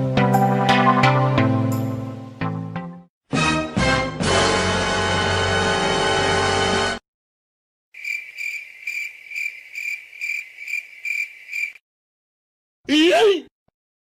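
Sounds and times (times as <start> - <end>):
music: 0.0 - 7.0
cricket chirping: 8.0 - 11.8.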